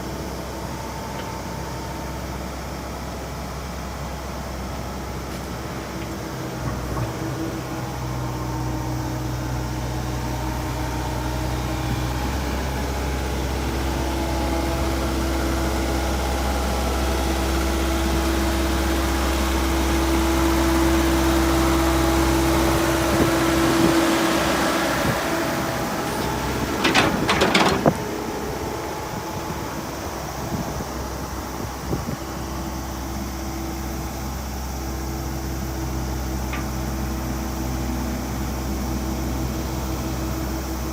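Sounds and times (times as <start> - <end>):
excavator diesel engine running: 0.0 - 40.9
steady whine: 0.0 - 40.9
cluster of knocks: 26.8 - 28.0.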